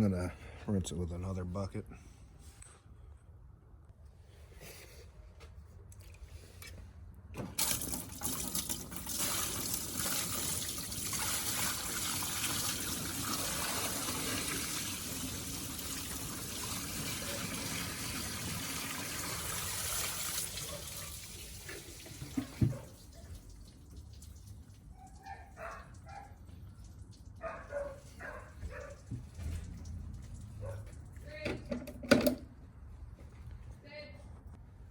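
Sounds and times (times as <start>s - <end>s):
water pouring and splashing: 7.6s - 27.7s, 28.8s - 31.2s.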